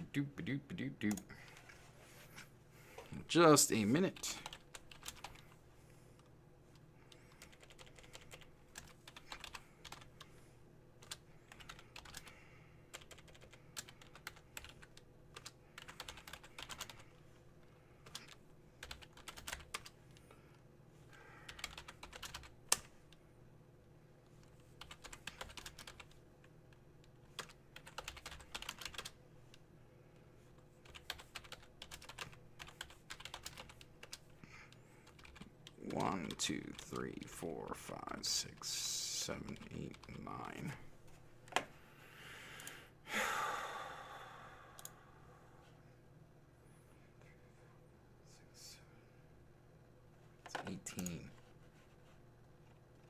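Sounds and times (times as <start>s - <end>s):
faint steady hum: 0.0s - 53.0s
keyboard typing: 4.2s - 5.6s, 6.2s - 10.3s, 11.0s - 17.3s, 18.0s - 20.2s, 21.5s - 23.2s, 24.3s - 29.2s, 30.5s - 34.3s, 35.0s - 37.4s, 39.3s - 40.3s, 50.5s - 52.0s.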